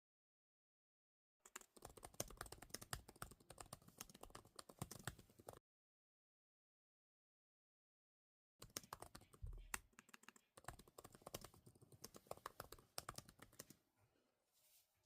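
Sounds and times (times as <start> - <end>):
fast keyboard typing: 1.5 - 5.6, 8.6 - 13.8.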